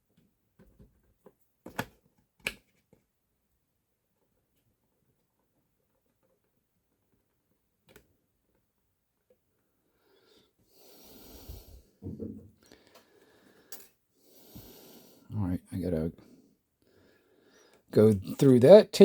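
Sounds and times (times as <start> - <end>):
man breathing heavily: 10.0 - 12.0, 12.6 - 15.3, 16.2 - 17.8.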